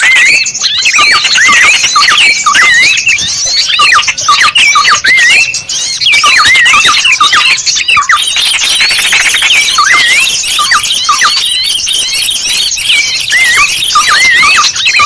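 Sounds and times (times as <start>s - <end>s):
small birds chirping and whistling: 0.0s - 15.0s.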